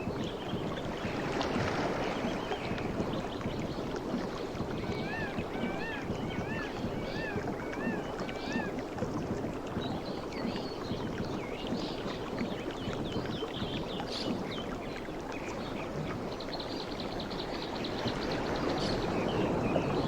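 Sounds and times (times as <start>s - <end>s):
sea waves washing on shore: 0.0s - 20.0s.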